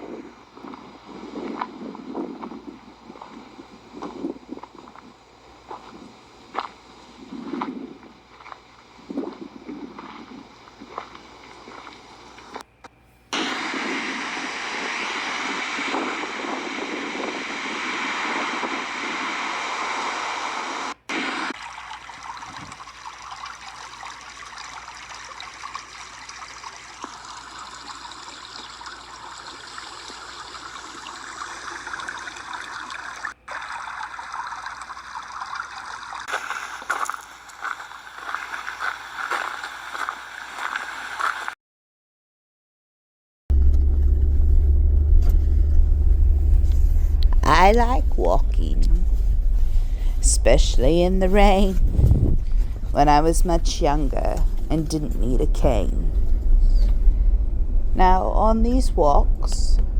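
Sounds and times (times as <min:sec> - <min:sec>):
running water rushing: 0:13.6 - 0:41.5.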